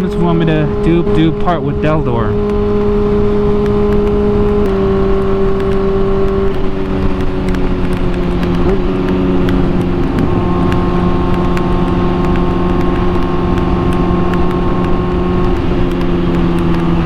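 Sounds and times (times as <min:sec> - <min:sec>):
motorcycle engine cruising: 0:00.0 - 0:17.0
wind rushing on microphone: 0:00.0 - 0:17.0.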